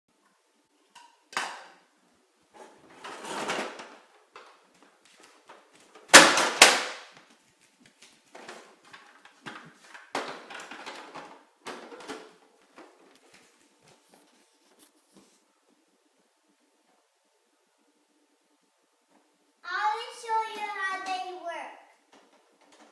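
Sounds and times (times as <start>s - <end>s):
toys knocking and clattering: 8.4s - 13.0s, 22.1s - 22.9s.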